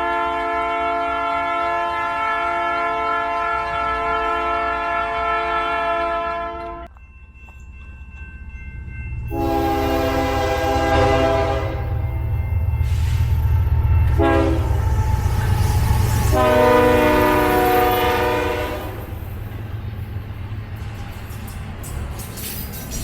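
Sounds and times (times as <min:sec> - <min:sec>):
locomotive air horn blast: 0:00.0 - 0:06.9, 0:09.3 - 0:12.2, 0:14.1 - 0:19.2
locomotive rumble: 0:06.6 - 0:23.0.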